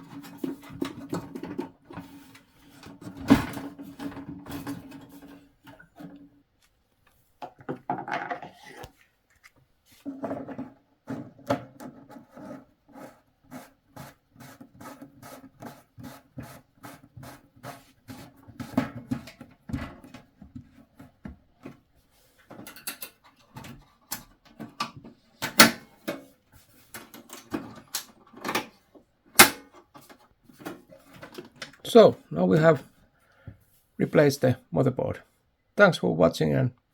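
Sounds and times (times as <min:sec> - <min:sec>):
sharp knocks and clatters: 0:07.4 - 0:08.7.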